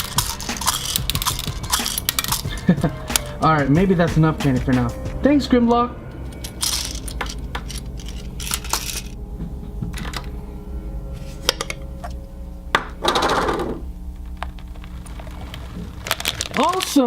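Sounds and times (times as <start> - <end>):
packaging rustle: 14.5 - 17.0.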